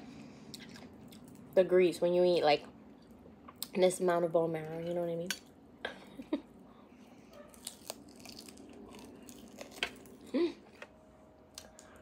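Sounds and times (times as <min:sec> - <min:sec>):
wet chewing: 0:07.4 - 0:10.2.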